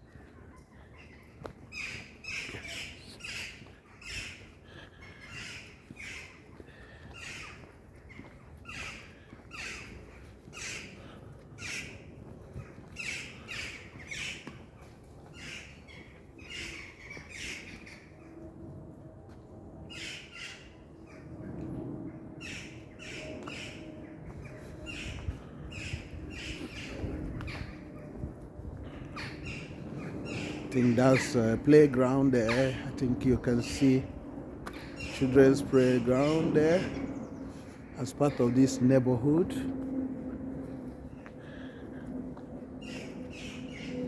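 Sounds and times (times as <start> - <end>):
footsteps scuffing: 5.4 - 10.7.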